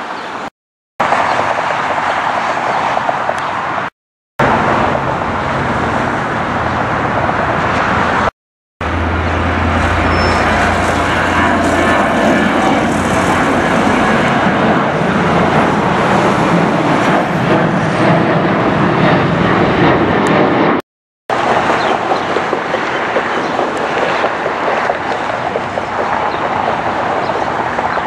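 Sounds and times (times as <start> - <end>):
jet engine roar: 1.0 - 28.0
high whine sliding in pitch: 8.8 - 17.1.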